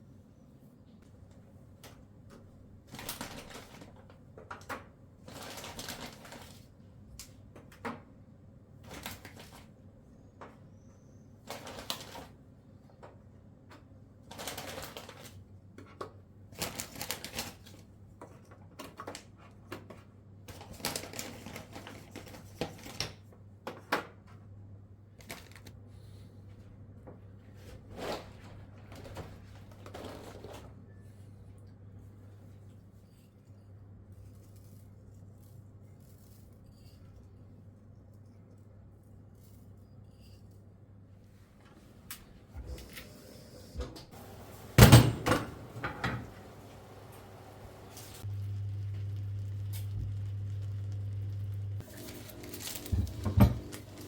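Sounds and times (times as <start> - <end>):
low hum: 45.5 - 52.8.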